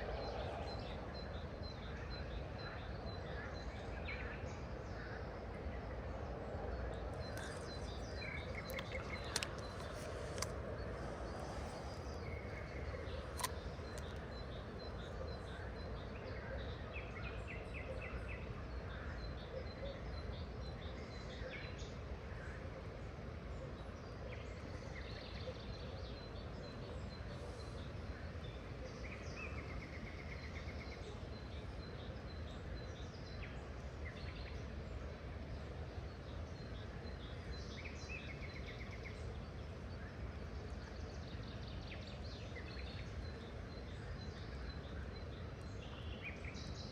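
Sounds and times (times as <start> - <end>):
low outdoor background rush: 0.0 - 46.9
small birds chirping: 6.7 - 16.3
sharp click: 13.3 - 14.2.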